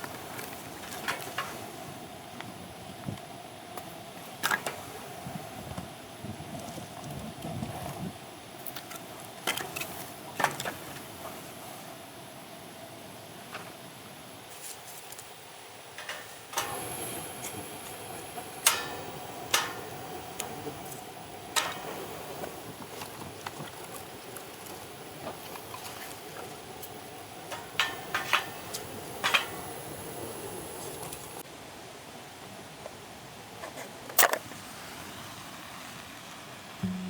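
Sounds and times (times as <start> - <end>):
steady hiss: 0.0 - 37.0.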